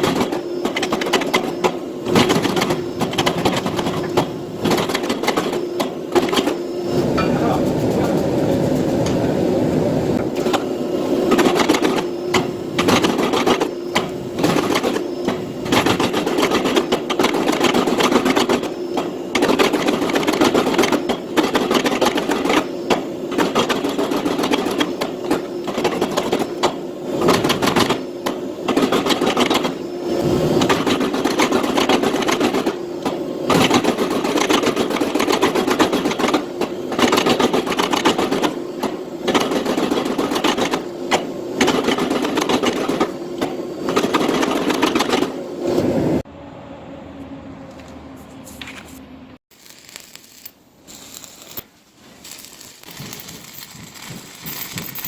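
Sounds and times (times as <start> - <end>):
machine running rhythmically: 0.0 - 9.0, 11.2 - 45.4.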